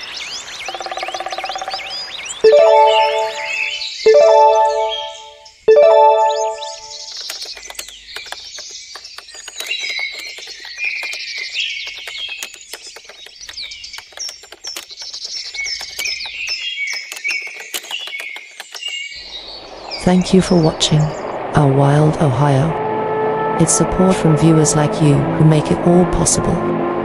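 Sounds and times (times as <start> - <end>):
birds chirping and singing: 0.0 - 5.6, 6.5 - 21.3
sharp clicks: 7.1 - 19.1.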